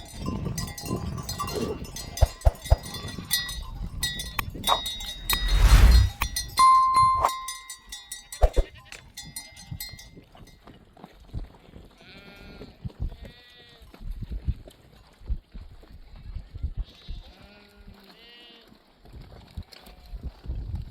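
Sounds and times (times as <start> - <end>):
sheep bells clanking: 0.0 - 10.8.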